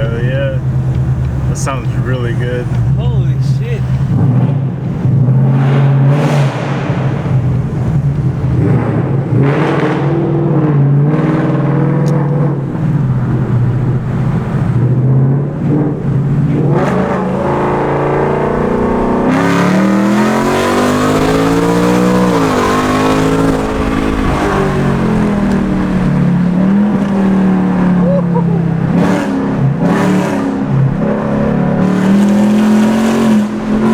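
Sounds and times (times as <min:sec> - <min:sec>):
car engine revving: 0:00.0 - 0:33.9.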